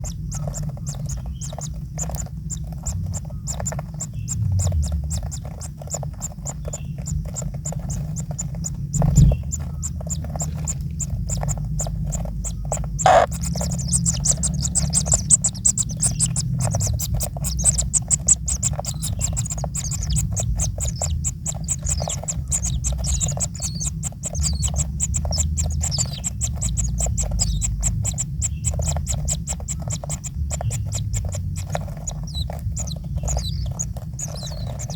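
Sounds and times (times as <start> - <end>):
chicks chittering begging calls: 0.0 - 34.9
steady low rumble: 0.0 - 34.9.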